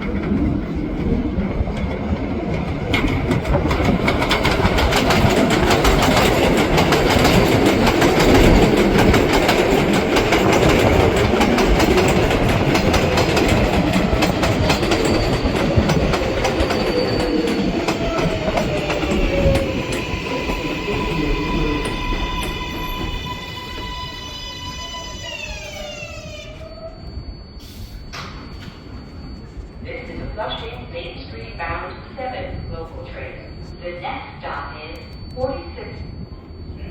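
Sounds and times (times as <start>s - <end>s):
train wheels clattering over rail joints: 1.8s - 20.6s.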